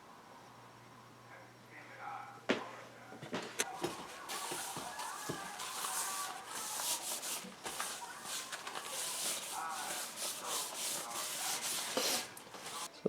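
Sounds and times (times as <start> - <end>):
hand rubbing cast iron pan: 3.8 - 12.9.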